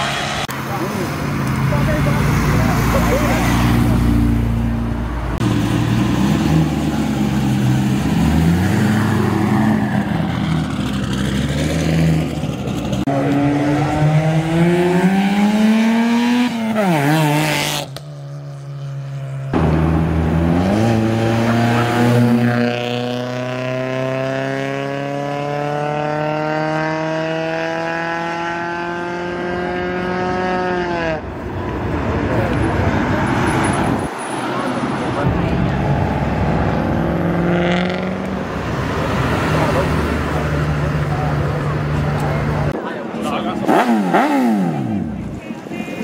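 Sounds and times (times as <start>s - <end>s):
sports car engines accelerating: 0.0s - 46.0s.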